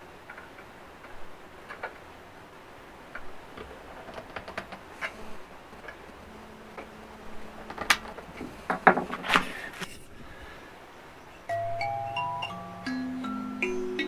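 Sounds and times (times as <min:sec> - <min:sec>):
faint low kalimba tone: 0:11.5 - 0:14.0.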